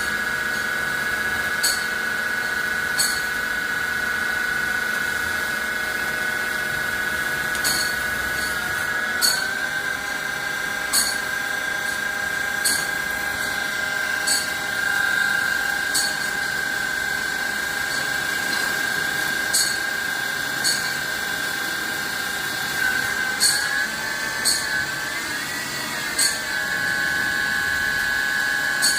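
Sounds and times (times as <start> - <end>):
machine high-pitched whine: 0.0 - 28.9.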